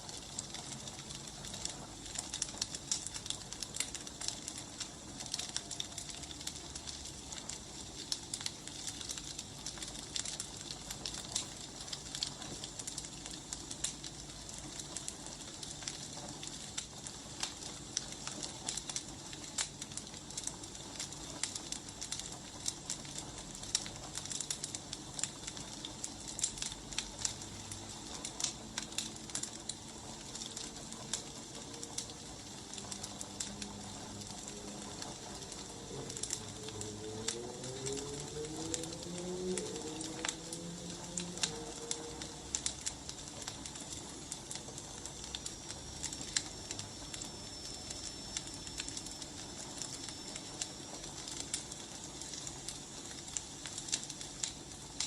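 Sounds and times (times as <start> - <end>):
firewood crackling and popping: 0.0 - 55.0.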